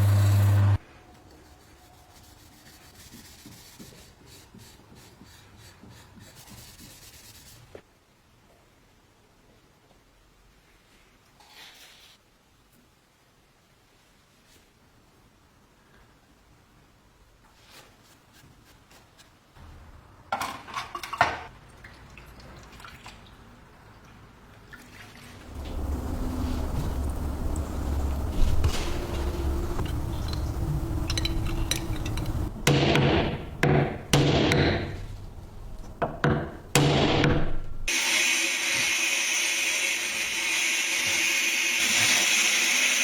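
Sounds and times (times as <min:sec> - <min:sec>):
low hum: 0:25.4 - 0:34.2
sharp knocks and clatter: 0:28.3 - 0:35.2.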